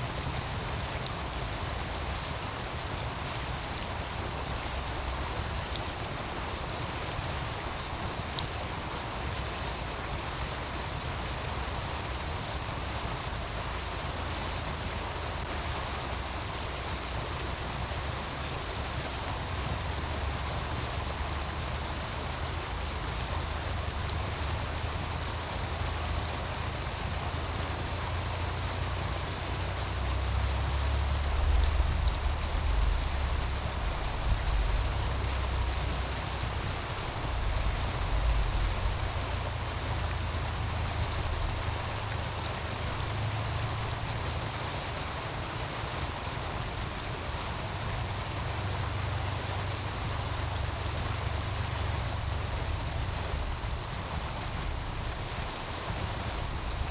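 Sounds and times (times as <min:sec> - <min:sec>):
stream rushing: 0:00.0 - 0:56.9
wood fire crackling: 0:00.0 - 0:56.9
wind rumble on microphone: 0:14.5 - 0:56.9.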